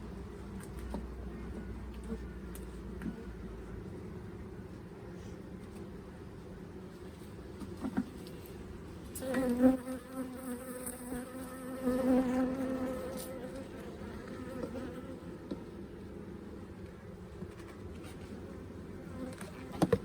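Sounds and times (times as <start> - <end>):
honey bee buzzing: 9.2 - 15.4.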